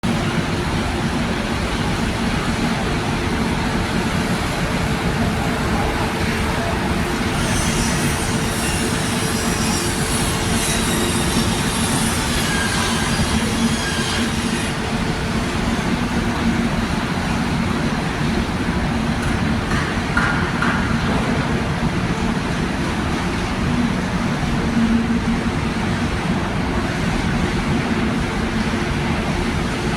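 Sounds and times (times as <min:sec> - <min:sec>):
high-pitched metallic squealing: 0:06.6 - 0:15.9.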